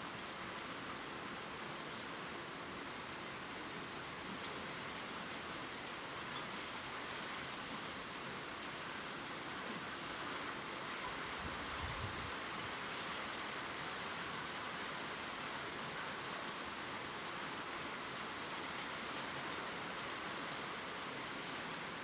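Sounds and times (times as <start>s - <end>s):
gentle rain on leaves: 0.0s - 22.0s.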